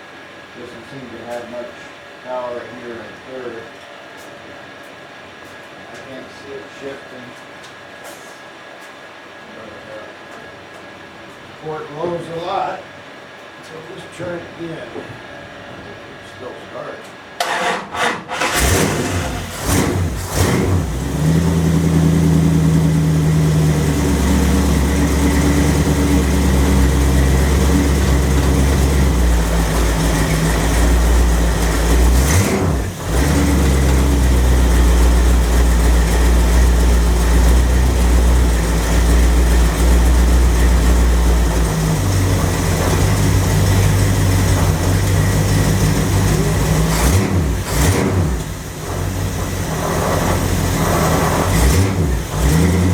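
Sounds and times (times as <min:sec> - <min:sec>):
car engine running: 0:18.3 - 0:52.9.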